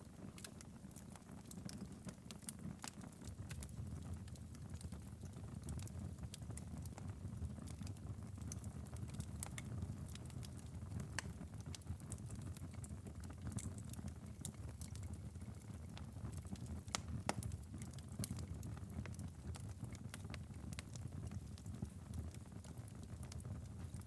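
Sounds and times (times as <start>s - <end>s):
low rumble of flames: 0.0s - 24.0s
fire pops and snaps: 0.1s - 24.0s.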